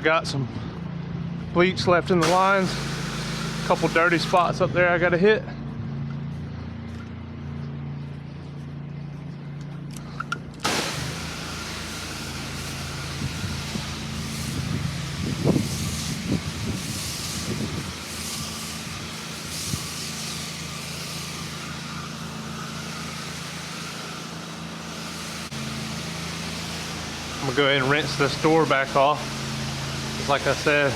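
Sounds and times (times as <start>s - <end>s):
pressure washer jet spraying: 2.2s - 4.6s, 10.6s - 30.9s
machine humming: 2.2s - 4.8s, 10.6s - 30.9s.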